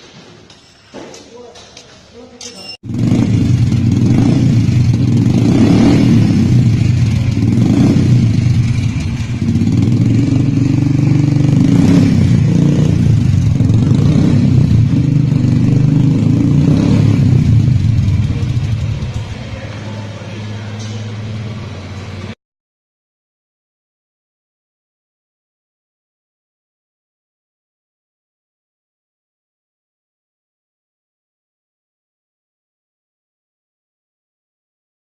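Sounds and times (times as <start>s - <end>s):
motorcycle engine deep exhaust note: 2.8s - 22.3s
engine throttle blips: 2.8s - 22.4s.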